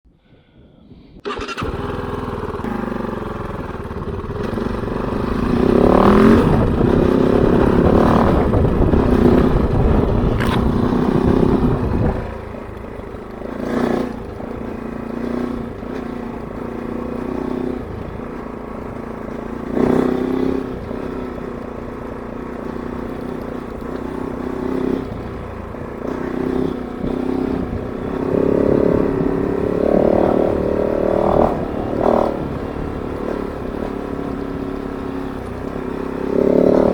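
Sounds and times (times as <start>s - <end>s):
motorcycle engine revving: 1.2s - 36.9s.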